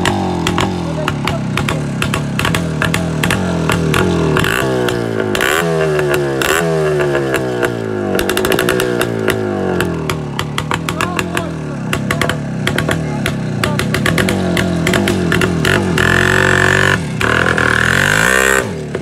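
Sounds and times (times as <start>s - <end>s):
exhaust crackling: 0.0s - 19.0s
motorcycle engine revving: 0.0s - 19.0s.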